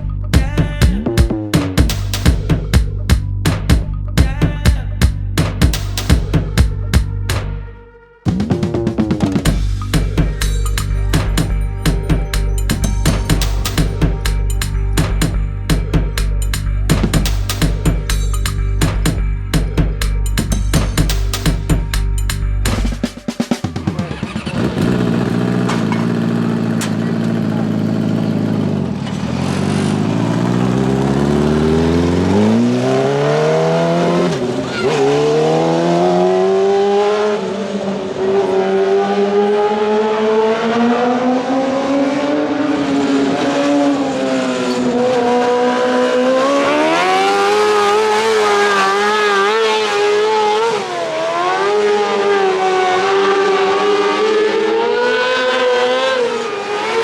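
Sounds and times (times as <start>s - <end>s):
race car engine revving: 22.7s - 57.0s.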